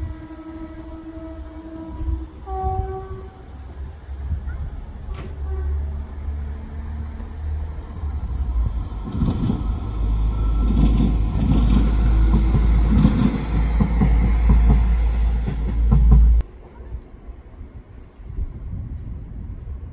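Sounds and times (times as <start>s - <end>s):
train engine and wheels rumbling: 0.0s - 19.9s
wheels clattering over rails: 9.0s - 16.4s.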